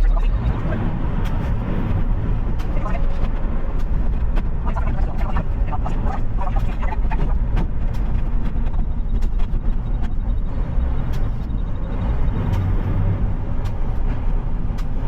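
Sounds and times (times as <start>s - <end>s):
garbage truck diesel engine: 0.0s - 15.0s.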